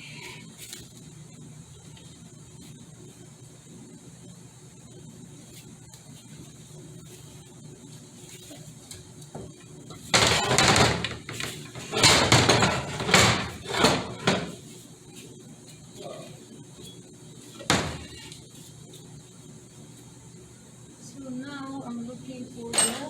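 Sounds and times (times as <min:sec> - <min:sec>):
metal parts clattering and knocking: 0:10.2 - 0:14.4.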